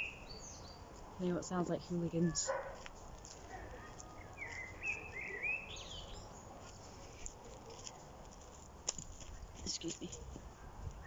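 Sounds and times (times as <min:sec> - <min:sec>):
bird chirping: 0:00.0 - 0:00.9, 0:04.2 - 0:06.5.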